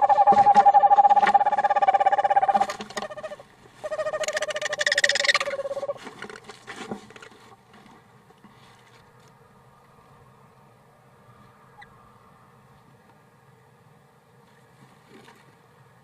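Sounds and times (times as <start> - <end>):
owl trilling: 0.0 - 6.0.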